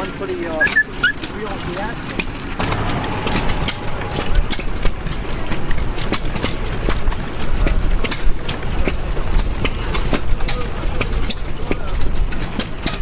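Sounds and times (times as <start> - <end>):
low engine rumble: 1.2 - 8.0.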